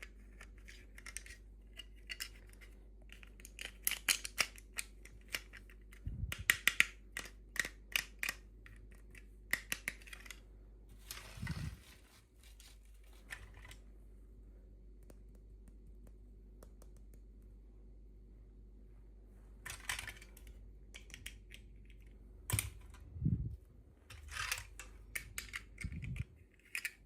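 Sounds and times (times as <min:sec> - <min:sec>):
packaging clicks and snips: 0:00.0 - 0:10.4
packaging rustle: 0:11.0 - 0:13.8.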